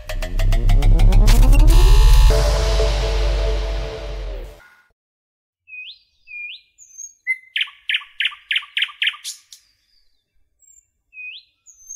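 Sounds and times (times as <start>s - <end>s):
caged birds chirping: 5.7s - 11.9s.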